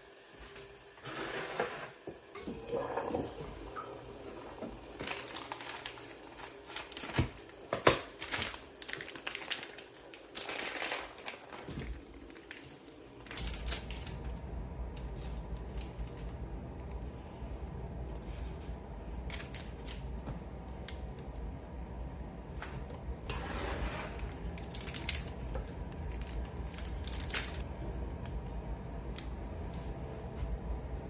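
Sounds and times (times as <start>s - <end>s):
low hum: 11.8s - 31.0s.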